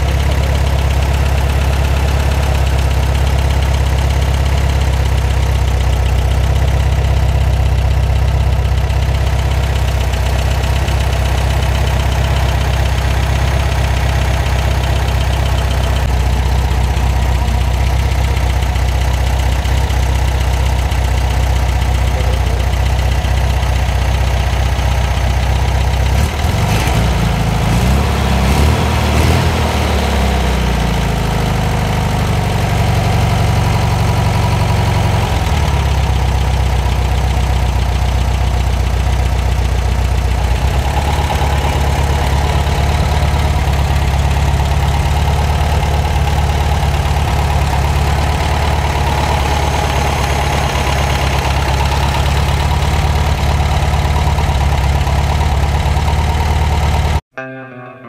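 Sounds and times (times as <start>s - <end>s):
air-cooled engine idling: 0.0s - 57.2s.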